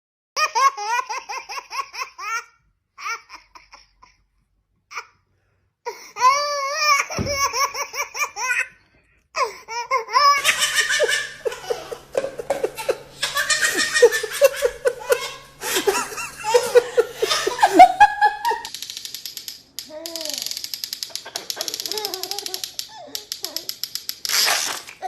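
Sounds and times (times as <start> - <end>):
baby laughing: 0.4 - 4.2, 6.2 - 8.7, 9.4 - 18.7, 21.1 - 23.7
low steady hum: 10.3 - 18.7.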